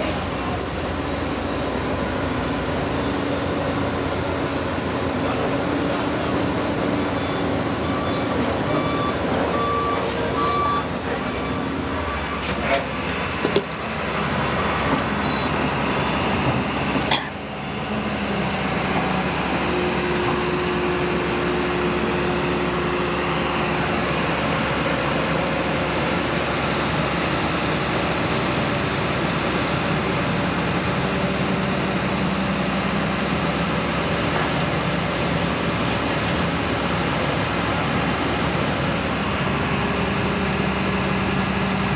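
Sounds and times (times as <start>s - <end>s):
heavy diesel machinery running: 0.0s - 41.9s
repeating beep: 7.1s - 12.4s.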